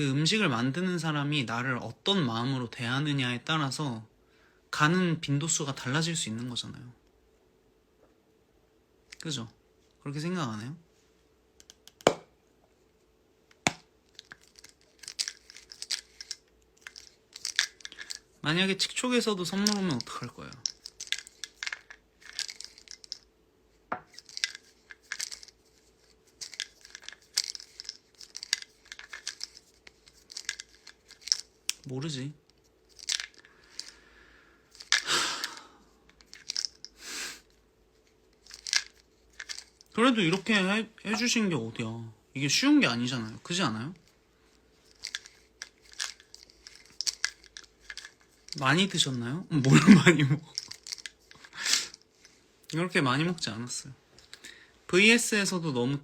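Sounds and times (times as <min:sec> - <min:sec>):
soft hiss: 0:00.4 - 0:56.0
rustling and crunching handling noise: 0:12.7 - 0:34.1, 0:34.7 - 0:41.4, 0:43.1 - 0:54.5
wrapper crinkling: 0:14.1 - 0:18.3, 0:19.4 - 0:23.2, 0:24.1 - 0:31.8, 0:32.8 - 0:34.0, 0:34.7 - 0:36.9, 0:38.1 - 0:40.5, 0:44.0 - 0:52.4.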